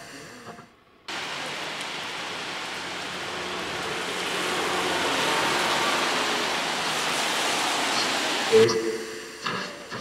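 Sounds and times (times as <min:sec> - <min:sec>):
rain falling: 0:01.1 - 0:09.0.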